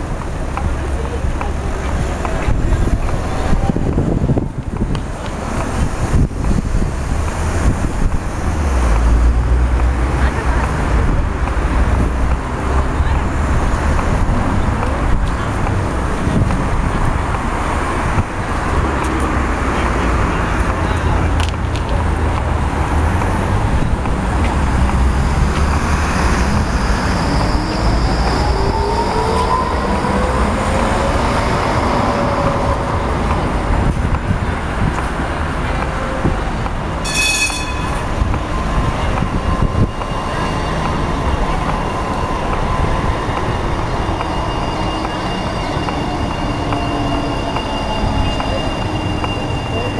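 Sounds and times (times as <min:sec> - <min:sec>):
electric tram drive whine: 0:00.0 - 0:49.9
street noise: 0:00.0 - 0:49.9
thin high-pitched tone: 0:37.0 - 0:38.1
high ringing chime: 0:37.0 - 0:38.2.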